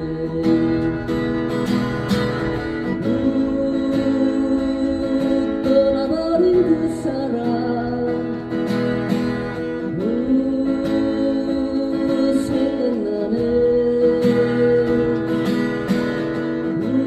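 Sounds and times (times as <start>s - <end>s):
man singing a ballad: 0.0s - 1.4s, 3.0s - 8.7s, 9.8s - 15.6s, 16.7s - 17.0s
strummed acoustic guitar: 0.0s - 17.0s.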